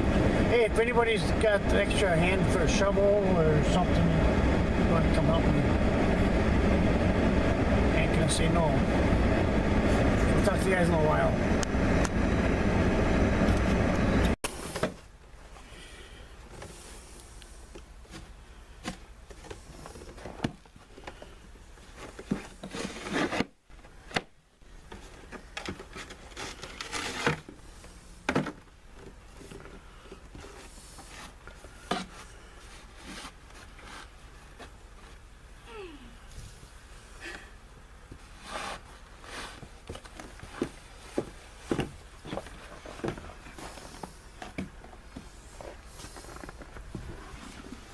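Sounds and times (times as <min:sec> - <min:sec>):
low steady hum: 0:00.0 - 0:47.9
snow shovel scraping and knocking: 0:21.8 - 0:23.5, 0:25.2 - 0:28.6, 0:38.2 - 0:47.9.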